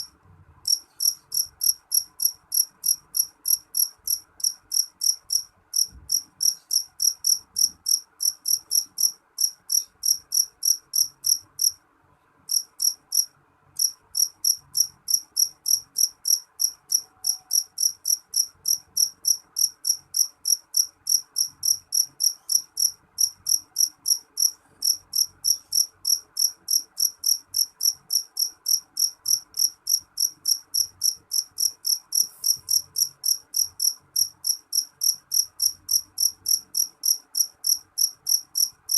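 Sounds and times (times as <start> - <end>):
cricket chirping: 0.7 - 11.8, 12.5 - 38.9.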